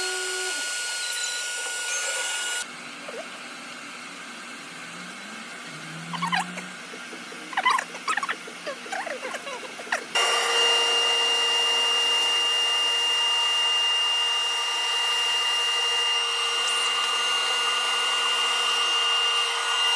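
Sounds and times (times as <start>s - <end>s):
router cutting wood: 0.0s - 19.9s
router spindle whining: 0.0s - 19.9s
squeaky rising and falling tones: 5.0s - 10.5s.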